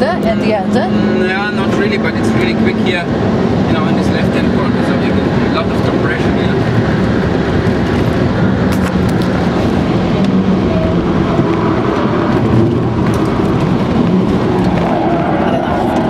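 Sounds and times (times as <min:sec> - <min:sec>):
car engine at speed: 0:00.0 - 0:16.0
tyre and wind noise: 0:05.0 - 0:16.0.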